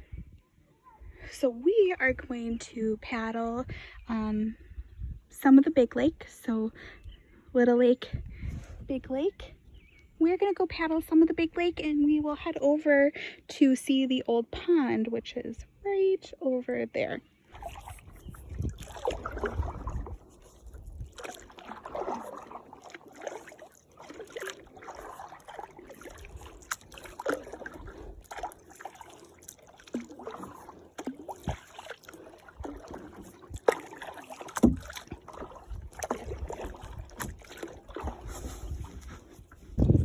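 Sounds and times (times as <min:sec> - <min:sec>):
paddle splashing in water: 0:17.5 - 0:40.0.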